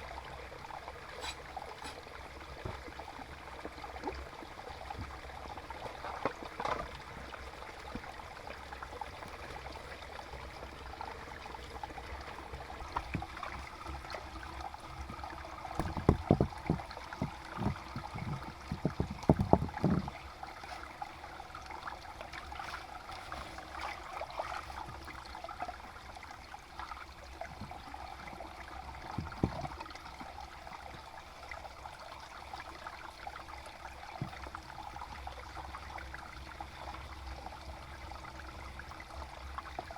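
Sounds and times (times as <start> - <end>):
water trickling: 0.0 - 39.9
knocks and thumps: 15.1 - 20.2, 29.1 - 29.7.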